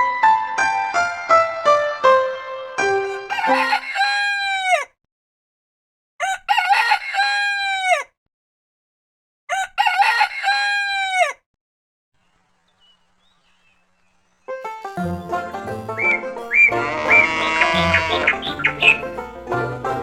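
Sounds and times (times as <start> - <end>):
rooster crowing: 3.2 - 4.8, 6.2 - 8.0, 9.5 - 11.3, 15.9 - 20.0.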